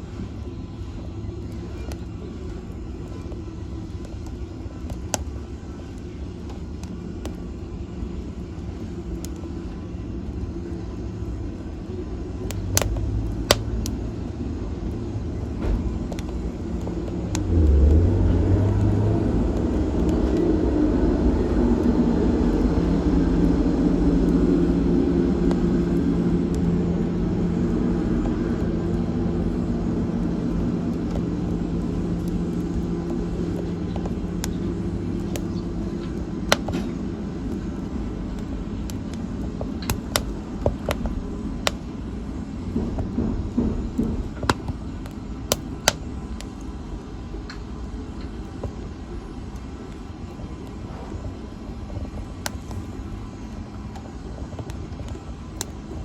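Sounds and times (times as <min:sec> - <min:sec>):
fire popping: 0:00.0 - 0:56.0
fire rumbling in a fireplace: 0:00.0 - 0:56.0.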